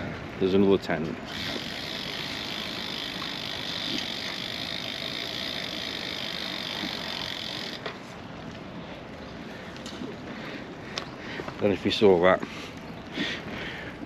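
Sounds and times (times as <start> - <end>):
bicycle tyres hissing: 1.3 - 7.9.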